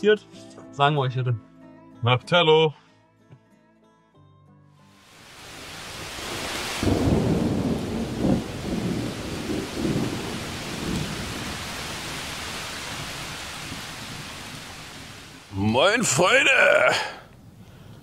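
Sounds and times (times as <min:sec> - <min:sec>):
heavy rain pouring: 0:05.0 - 0:17.2
thunder rumbling: 0:05.8 - 0:15.6.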